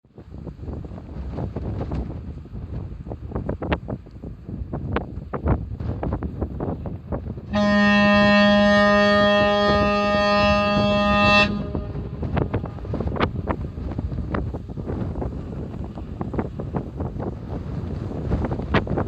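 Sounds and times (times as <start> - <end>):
wind buffeting microphone: 0.0 - 19.0
ship horn blast: 7.5 - 13.2.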